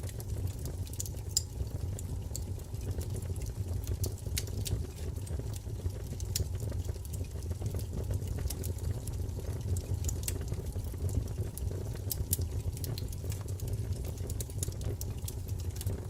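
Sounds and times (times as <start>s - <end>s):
flames rumbling: 0.0s - 16.0s
wood crackling and popping: 0.0s - 16.0s.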